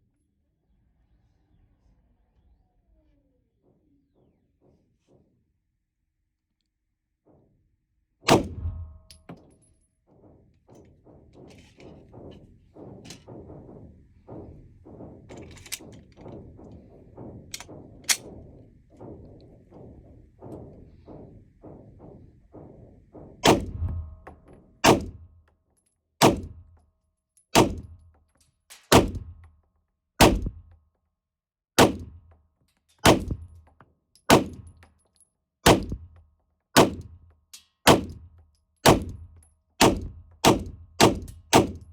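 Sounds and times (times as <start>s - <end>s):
pistol shots: 8.3s - 9.0s, 24.8s - 25.2s, 26.2s - 26.6s, 27.6s - 27.9s, 28.9s - 29.4s, 30.2s - 30.6s, 31.8s - 32.2s, 33.0s - 33.5s, 34.3s - 34.7s, 35.6s - 36.1s, 36.8s - 37.2s, 37.9s - 38.2s, 38.8s - 39.2s, 39.8s - 41.9s.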